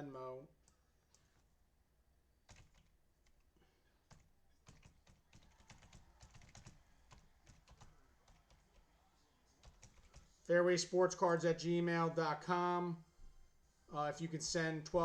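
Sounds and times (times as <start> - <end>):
typing on a computer keyboard: 2.5 - 3.4, 4.1 - 8.8, 9.6 - 10.3.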